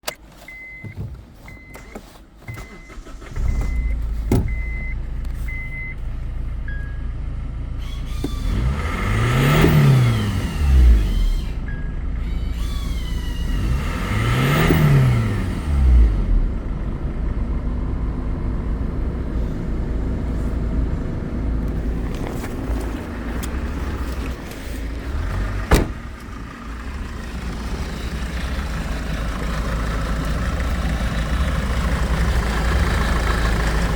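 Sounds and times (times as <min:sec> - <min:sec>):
diesel engine starting and idling: 0:00.0 - 0:33.9
short electronic beeps: 0:02.5 - 0:06.0
engine revving: 0:07.8 - 0:16.7, 0:25.0 - 0:33.9.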